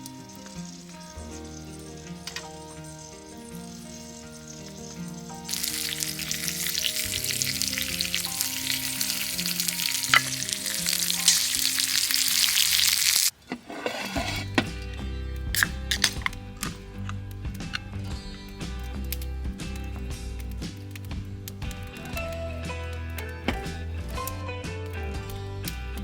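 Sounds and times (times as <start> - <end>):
food sizzling in a hot pan: 0.0 - 13.3
background music: 0.0 - 26.0.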